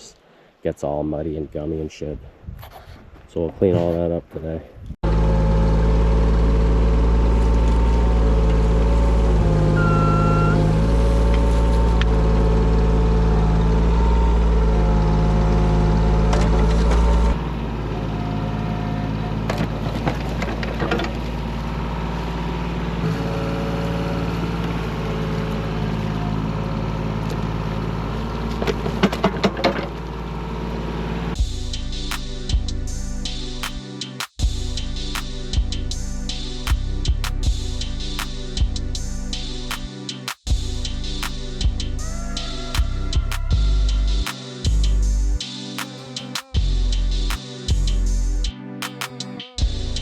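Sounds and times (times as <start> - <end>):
hydraulic whine: 5.0 - 19.7
diesel engine running: 5.0 - 31.8, 40.5 - 45.4.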